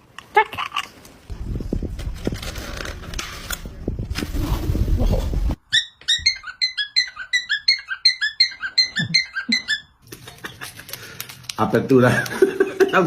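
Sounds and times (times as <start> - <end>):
parrot squeaky chirps: 5.6 - 10.0.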